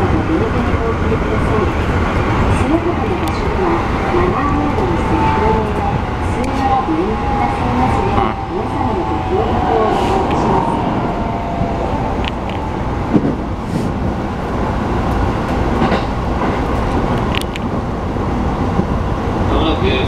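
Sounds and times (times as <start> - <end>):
train wheels rumbling on rail: 0.0 - 20.0
sharp track clicks: 11.6 - 13.4, 14.4 - 17.8.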